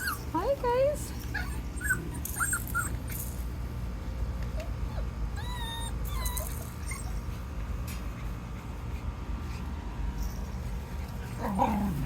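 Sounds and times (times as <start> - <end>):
puppies whimpering: 0.0 - 3.4, 4.5 - 7.6.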